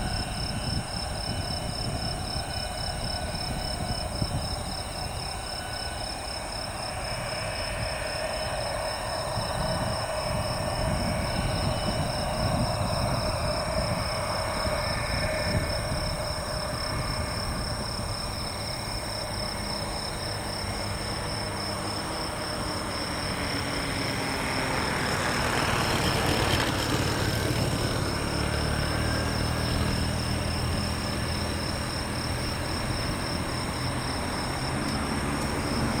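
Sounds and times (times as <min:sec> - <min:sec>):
jet engines rumbling: 0:00.0 - 0:36.0.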